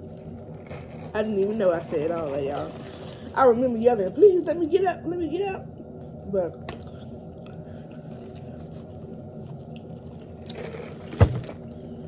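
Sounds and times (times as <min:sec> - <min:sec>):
eating and handling noises: 0:00.0 - 0:03.4, 0:06.1 - 0:12.0
low room hum: 0:00.0 - 0:12.0.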